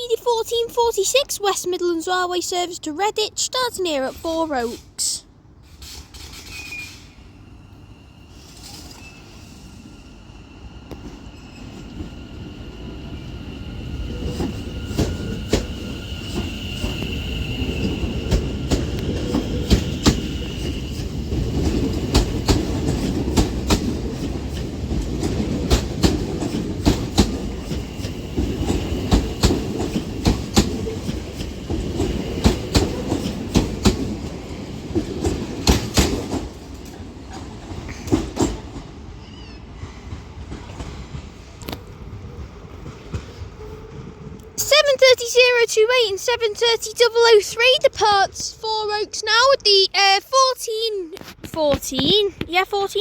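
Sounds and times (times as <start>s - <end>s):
train running rumble: 10.9s - 45.5s
wheels clicking over rail joints: 14.1s - 41.8s.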